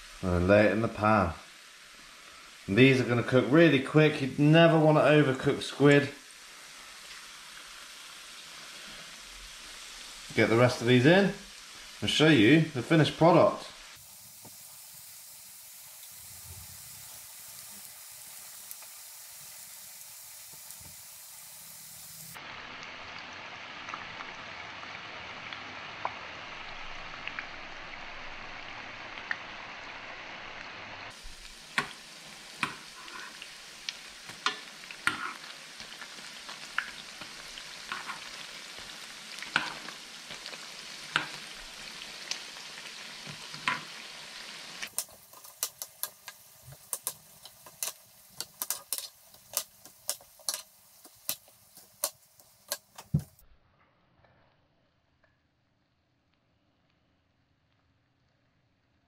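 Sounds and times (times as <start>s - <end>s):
squid rings sizzling in oil: 0.0s - 53.4s
oil crackling and popping: 6.2s - 10.5s, 13.8s - 29.9s, 30.6s - 53.4s.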